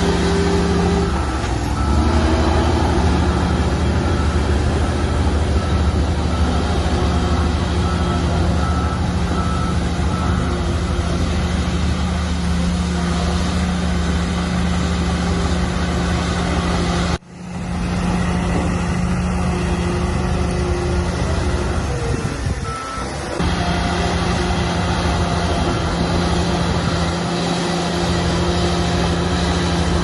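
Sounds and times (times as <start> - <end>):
diesel machinery running: 0.0 - 30.0.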